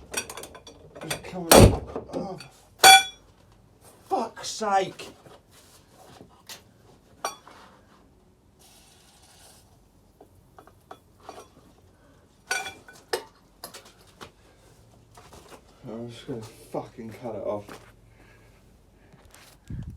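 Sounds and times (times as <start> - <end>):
metal tools clinking on metal: 0.1 - 1.4, 2.3 - 3.2, 12.5 - 13.9.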